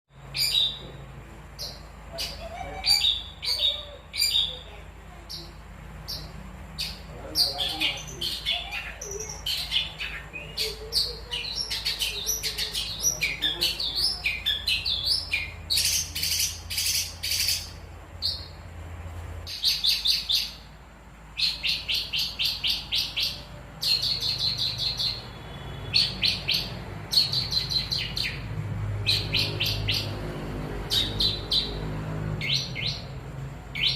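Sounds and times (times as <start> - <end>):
bird singing sharp chirps: 21.4 - 30.2, 30.8 - 33.9.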